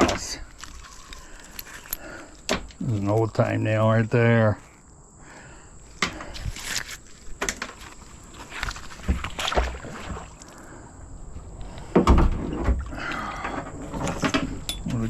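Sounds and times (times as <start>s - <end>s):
clicks and knocks of iron objects: 14.0s - 15.0s.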